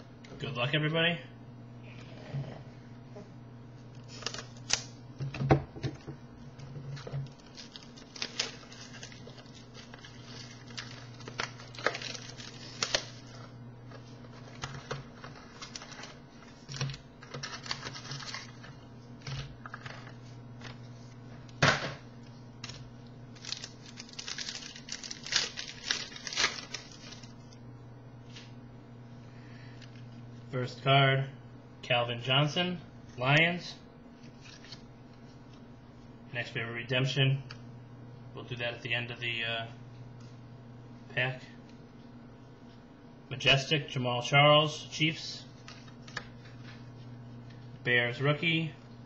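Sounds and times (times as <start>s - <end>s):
low steady hum: 0.0s - 49.0s
wrapper crinkling and tearing: 4.0s - 4.9s, 7.2s - 20.2s, 22.6s - 27.5s.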